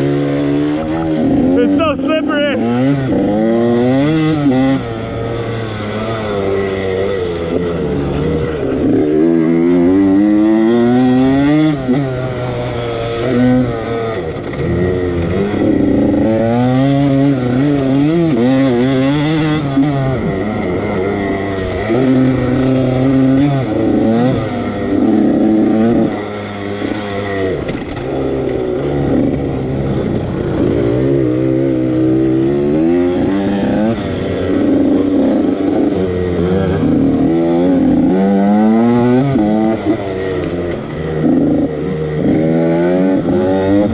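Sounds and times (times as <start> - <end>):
motocross engine revving: 0.0 - 43.9.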